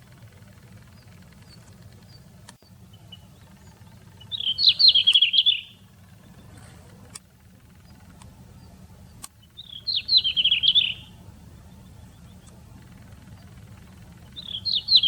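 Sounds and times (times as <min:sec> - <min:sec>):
songbird chirping run: 0:00.0 - 0:07.1.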